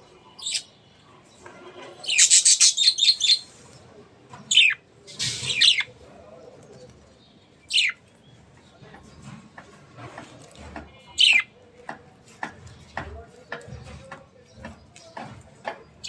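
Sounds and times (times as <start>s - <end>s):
budgerigars chirping: 2.1s - 3.5s, 4.5s - 5.9s, 7.7s - 8.0s, 11.2s - 11.5s.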